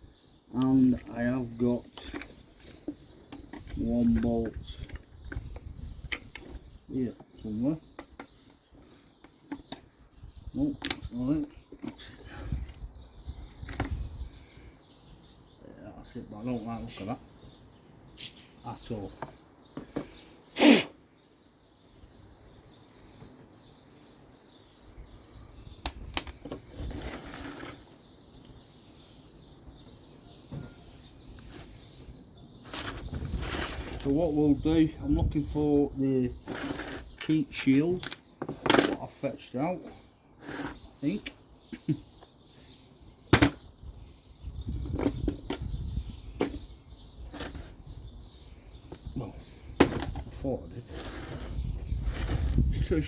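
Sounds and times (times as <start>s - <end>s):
birds chirping: 0.0s - 53.0s
parts and tools handling noise: 0.6s - 10.0s, 25.9s - 28.0s, 30.5s - 34.2s, 36.4s - 39.2s, 44.8s - 45.8s, 47.3s - 48.1s, 49.7s - 52.8s.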